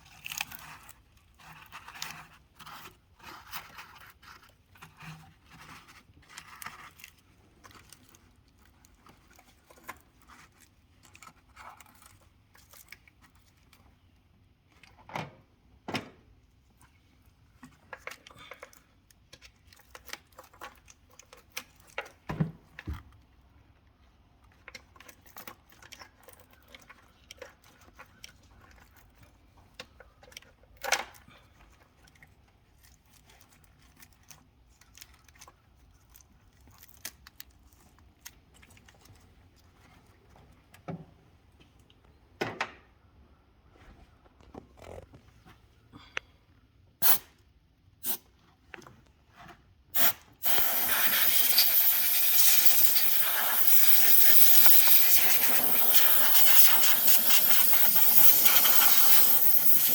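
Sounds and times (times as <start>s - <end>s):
tools and small parts clicking: 50.0s - 59.9s.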